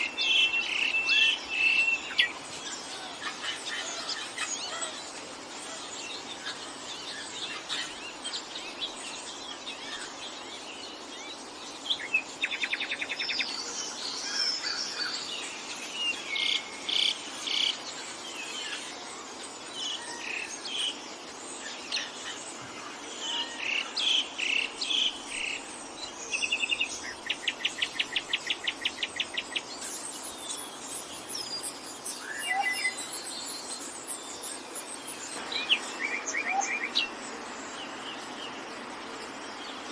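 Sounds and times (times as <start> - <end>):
birds calling and singing: 0.0 - 39.9
insects humming: 0.0 - 39.9.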